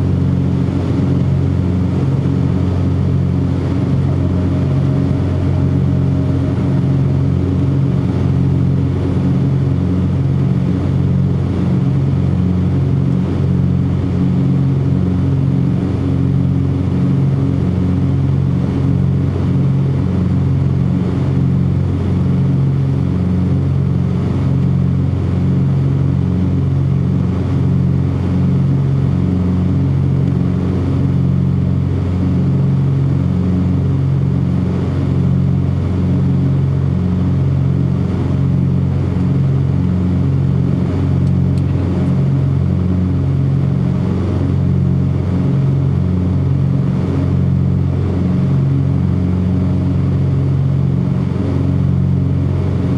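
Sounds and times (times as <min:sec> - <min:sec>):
twin piston engines droning: 0:01.2 - 0:10.4.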